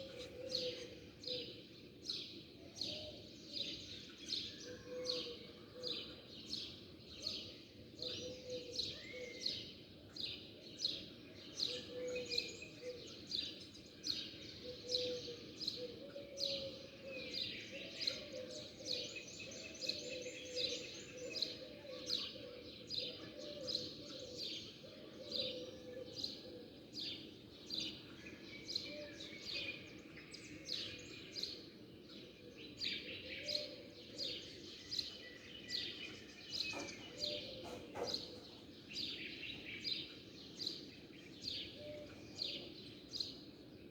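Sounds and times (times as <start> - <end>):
small birds chirping: 25.5 - 43.9.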